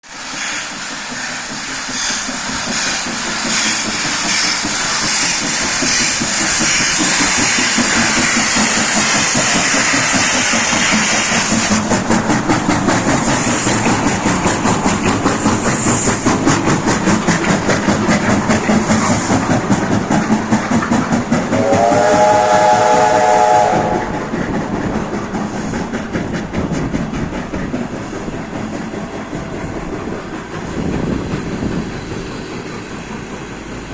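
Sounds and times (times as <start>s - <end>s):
steam train hissing: 0.0s - 33.9s
train wheels clattering: 0.2s - 33.9s
train whistle: 21.5s - 24.2s.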